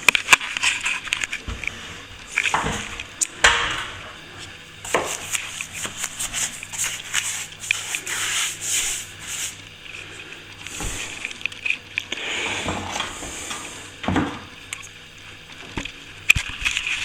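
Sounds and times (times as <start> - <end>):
plastering tool scraping plaster: 4.9 - 9.6.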